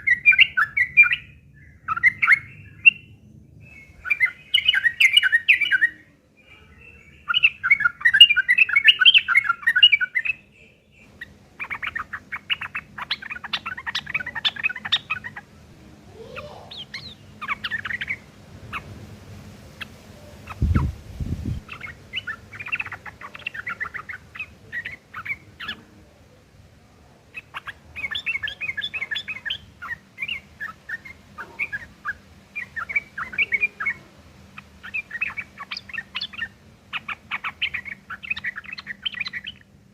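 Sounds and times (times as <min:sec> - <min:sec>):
birds harsh rapid chattering: 0:06.8 - 0:10.4, 0:11.0 - 0:26.0, 0:26.6 - 0:39.9.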